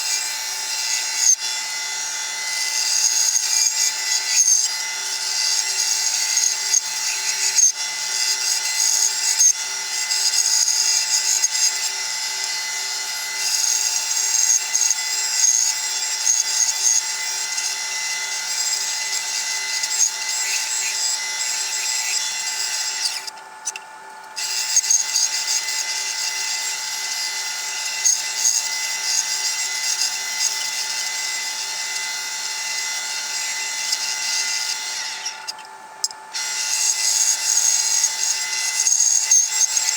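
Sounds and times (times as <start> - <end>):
bandsaw cutting wood: 0.0 - 23.4, 24.4 - 35.6, 36.2 - 39.9.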